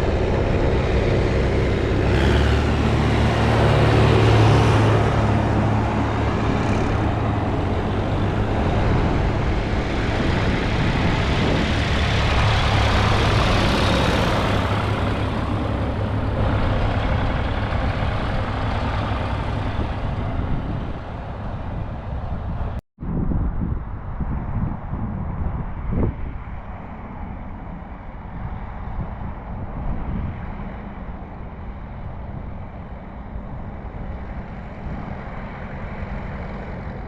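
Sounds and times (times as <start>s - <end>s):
tractor engines humming: 0.0s - 22.8s, 30.6s - 37.0s
wind: 0.0s - 37.0s.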